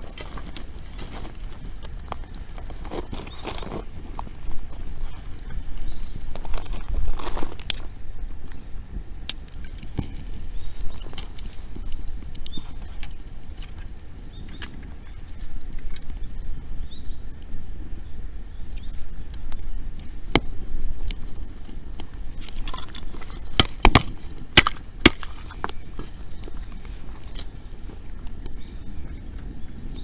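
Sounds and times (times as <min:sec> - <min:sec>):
loud cracks of fire: 0:00.0 - 0:08.0, 0:09.0 - 0:30.0
campfire crackling: 0:00.0 - 0:30.0
sharp pops of fire: 0:18.7 - 0:27.5.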